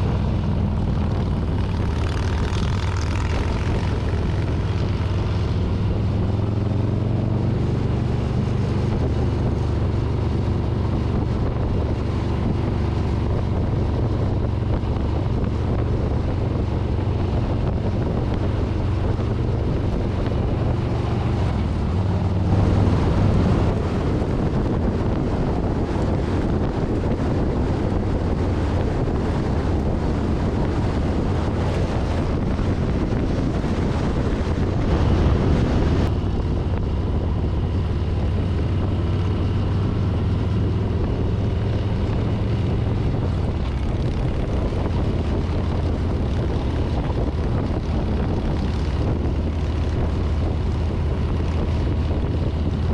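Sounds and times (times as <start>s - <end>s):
motorcycle engine running: 0.0s - 52.9s
wind noise on microphone: 0.0s - 52.9s.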